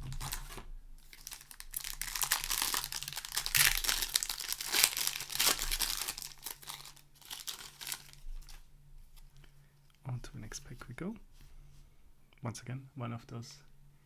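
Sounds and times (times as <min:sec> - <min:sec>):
plastic wrapper crinkling: 0:00.0 - 0:08.7.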